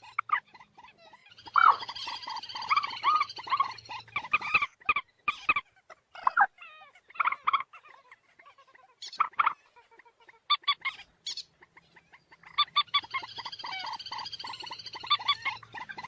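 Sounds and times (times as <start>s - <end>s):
moorhen calling: 0.0s - 16.0s.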